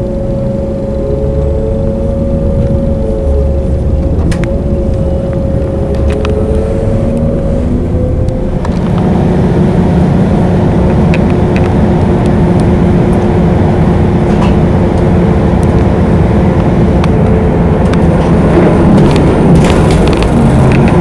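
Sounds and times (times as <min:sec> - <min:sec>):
faint steady hum: 0:00.0 - 0:08.8
vehicle rumbling: 0:00.0 - 0:21.0.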